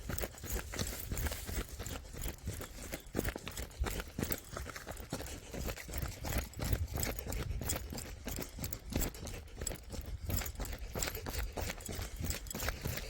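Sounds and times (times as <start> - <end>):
footsteps on stony trail: 0.0 - 13.0
wind rumble on microphone: 5.9 - 13.0.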